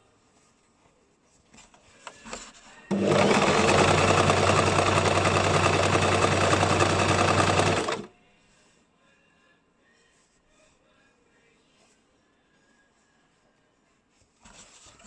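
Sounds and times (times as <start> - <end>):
sewing machine stitching: 2.9 - 8.1.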